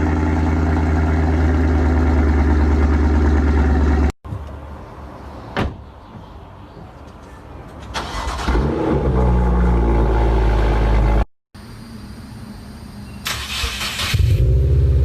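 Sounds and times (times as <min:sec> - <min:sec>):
car engine running: 0:00.0 - 0:04.1
engine cranking: 0:08.0 - 0:08.7, 0:13.2 - 0:14.4.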